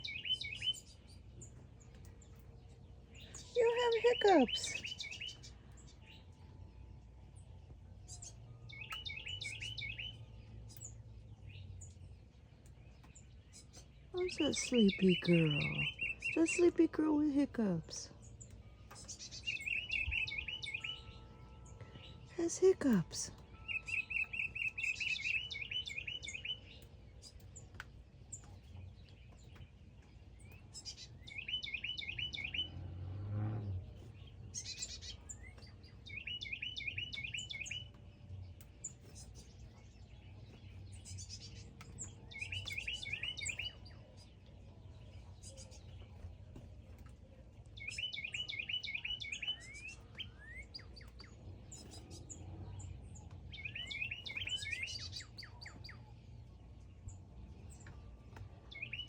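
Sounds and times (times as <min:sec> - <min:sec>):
songbird chirping: 0:00.0 - 0:59.0.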